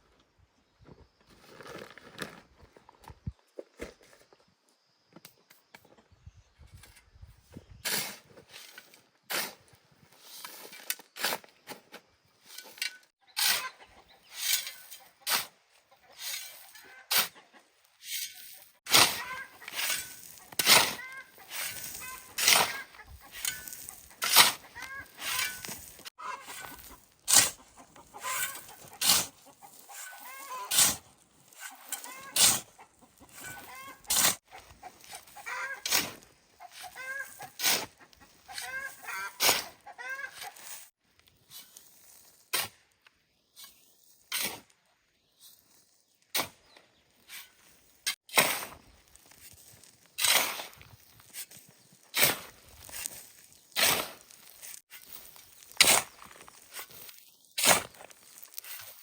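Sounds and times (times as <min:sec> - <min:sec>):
sharp scrapes and knocks: 0:07.8 - 0:15.6, 0:16.2 - 0:17.4, 0:18.0 - 0:42.9, 0:47.2 - 0:59.0
chickens clucking: 0:13.2 - 0:31.0, 0:31.6 - 0:40.9.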